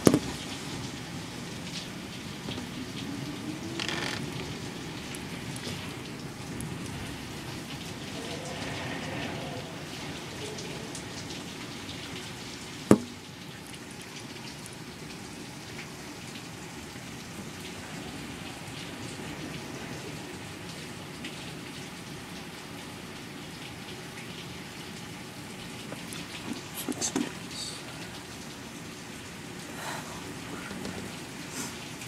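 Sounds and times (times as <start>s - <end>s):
steady rain falling: 0.0s - 32.0s
sharp knock: 12.9s - 13.2s.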